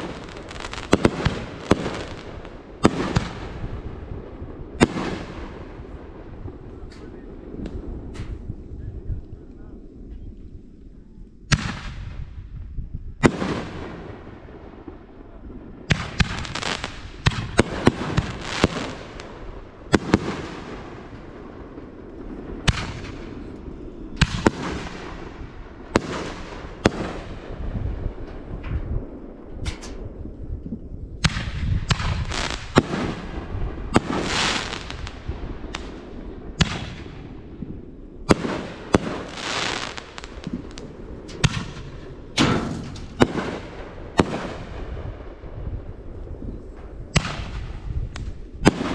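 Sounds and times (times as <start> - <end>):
fireworks banging: 0.0 - 8.8, 13.2 - 48.9
fireworks rumbling and crackling: 0.0 - 48.9.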